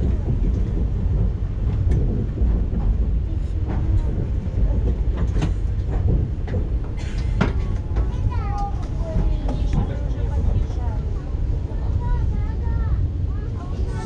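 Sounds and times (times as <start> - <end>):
wheels clicking on track: 0.0 - 12.6
train rumbling on rails: 0.0 - 14.0.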